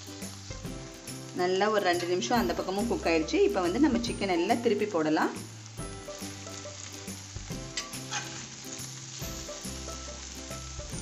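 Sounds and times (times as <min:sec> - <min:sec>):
meat sizzling in butter: 0:00.0 - 0:11.0
metal spatula scraping pan: 0:07.8 - 0:08.5.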